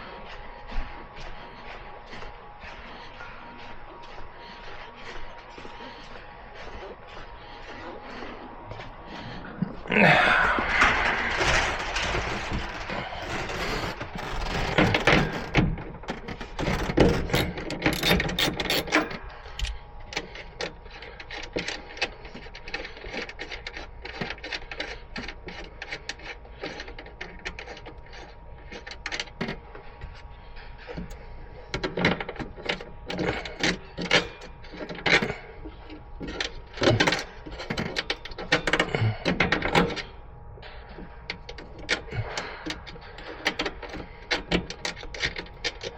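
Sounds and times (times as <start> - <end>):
hand tools and metal parts clanking: 6.8 - 30.2, 30.9 - 40.1.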